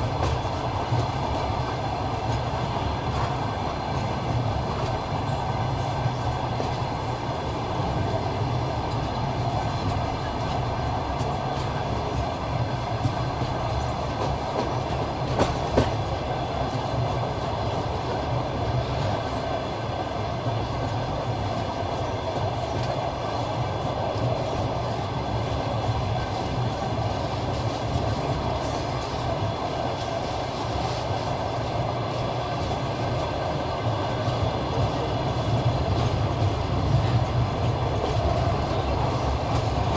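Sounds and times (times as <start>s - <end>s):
train carriage rumbling: 0.0s - 39.9s
wheels clattering over rail joints: 8.8s - 19.5s.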